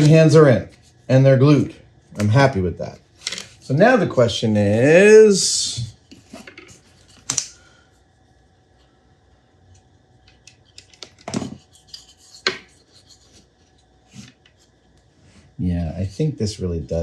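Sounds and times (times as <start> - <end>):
small parts clicking and rubbing: 9.7 - 14.8.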